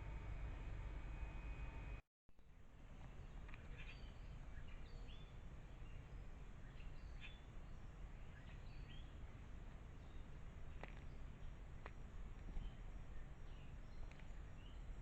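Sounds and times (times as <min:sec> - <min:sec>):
low background rumble: 0:00.0 - 0:15.0
faint bird chirps: 0:03.2 - 0:11.6.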